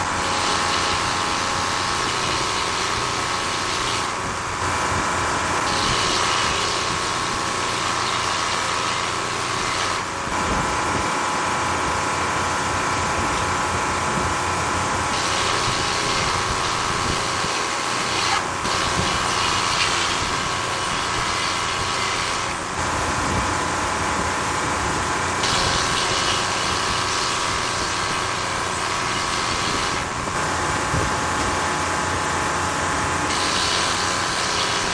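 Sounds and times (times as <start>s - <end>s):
saw blade cutting log: 0.0s - 10.5s, 15.1s - 23.0s, 25.4s - 31.6s, 33.2s - 34.9s
sawmill engine running: 0.0s - 34.9s.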